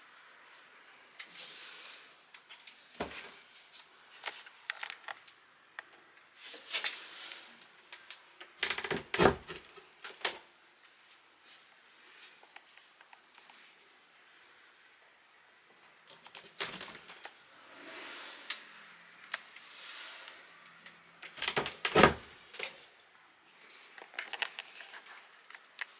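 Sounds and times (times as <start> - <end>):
wooden cabinet clicks and knocks: 8.6 - 9.6, 21.3 - 22.3.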